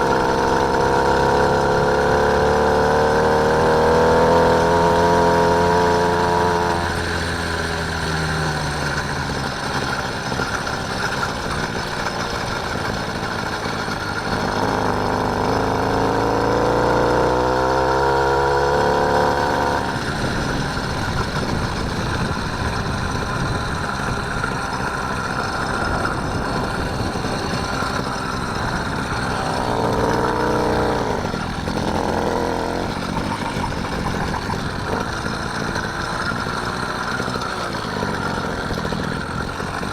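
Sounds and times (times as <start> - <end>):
motorised bike engine: 0.0 - 39.9.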